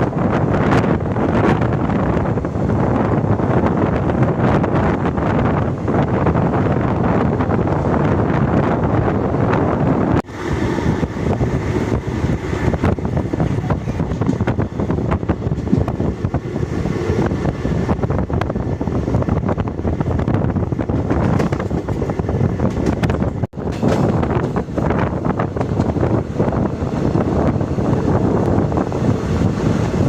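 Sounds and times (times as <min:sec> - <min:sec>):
train wheels rumbling on rails: 0:00.0 - 0:30.0
wind buffeting microphone: 0:00.0 - 0:30.0
sharp clicks and rattles: 0:21.0 - 0:26.1.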